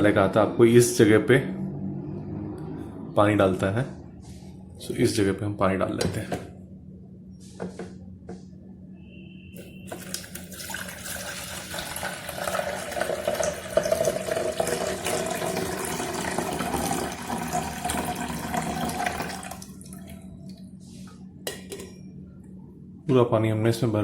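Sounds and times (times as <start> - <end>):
water pouring into reservoir: 9.9 - 20.2.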